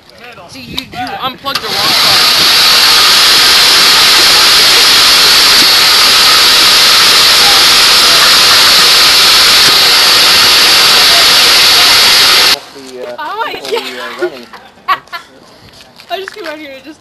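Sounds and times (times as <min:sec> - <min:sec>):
ball shooter hissing whir: 0:01.5 - 0:12.6.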